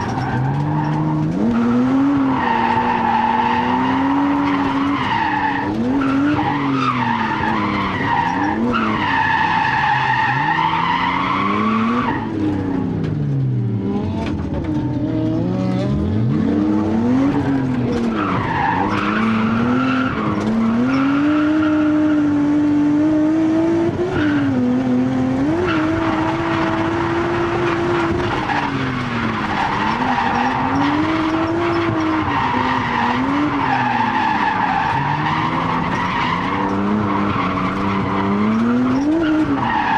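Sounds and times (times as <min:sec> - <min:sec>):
tyres skidding and squealing: 0:00.0 - 0:23.2, 0:23.9 - 0:39.9
car engine revving: 0:00.0 - 0:39.9.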